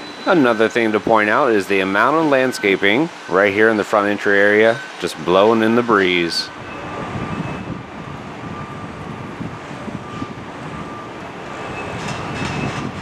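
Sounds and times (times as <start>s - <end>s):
steady outdoor hiss: 0.0s - 13.0s
wind gusting on microphone: 0.6s - 13.0s.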